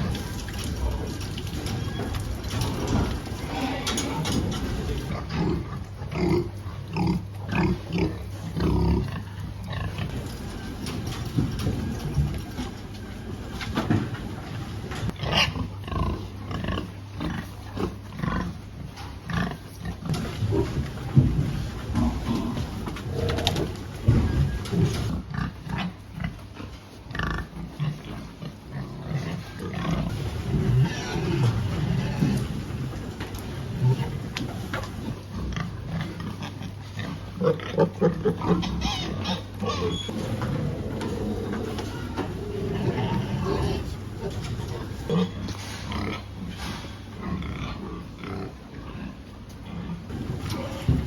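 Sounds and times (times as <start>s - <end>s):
pigs grunting: 0.0s - 51.0s
pig squeal: 37.7s - 43.7s.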